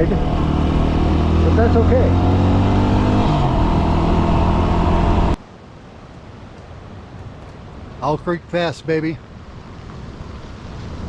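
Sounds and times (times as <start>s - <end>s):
motorcycle engine running: 0.0s - 5.4s.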